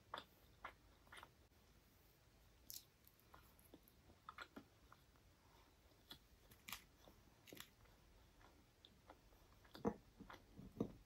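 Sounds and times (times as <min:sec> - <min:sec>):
chewing with wet mouth clicks: 0:00.0 - 0:01.4.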